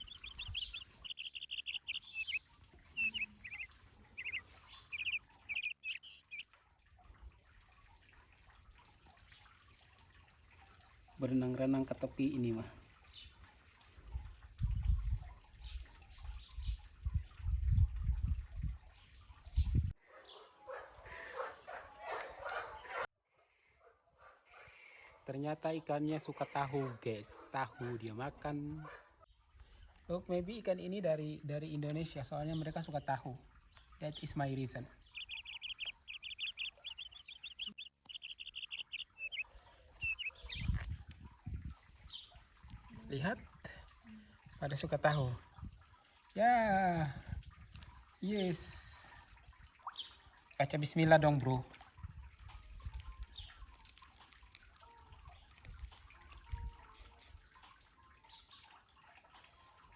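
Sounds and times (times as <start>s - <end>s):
insect chirping: 0.0s - 59.9s
thin steady high tone: 35.1s - 41.2s.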